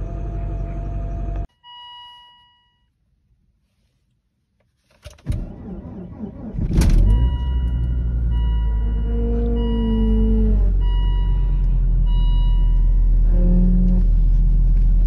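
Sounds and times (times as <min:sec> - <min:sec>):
car engine starting and idling: 0:00.0 - 0:01.5, 0:05.0 - 0:15.0.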